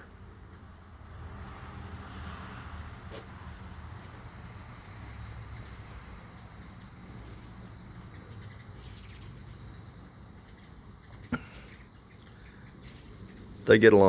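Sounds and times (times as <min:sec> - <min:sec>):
steady low hum: 0:03.0 - 0:14.0
wings fluttering: 0:03.1 - 0:14.0
hummingbird chip calls: 0:04.8 - 0:14.0.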